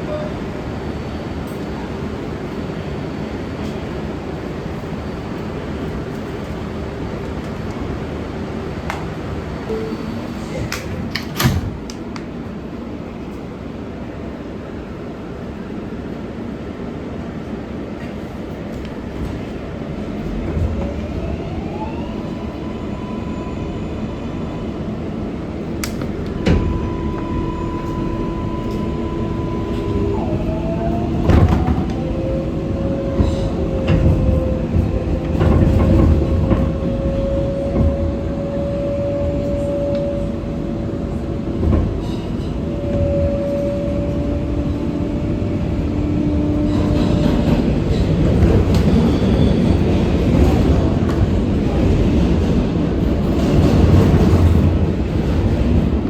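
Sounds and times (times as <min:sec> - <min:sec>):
wheels rumbling on rail: 0:00.0 - 0:56.0
train motors whining: 0:25.6 - 0:38.2.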